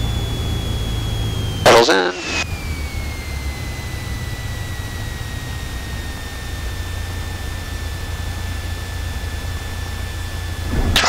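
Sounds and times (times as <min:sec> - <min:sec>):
aircraft engine low rumble: 0:00.0 - 0:11.0
thin high whine: 0:00.0 - 0:11.0.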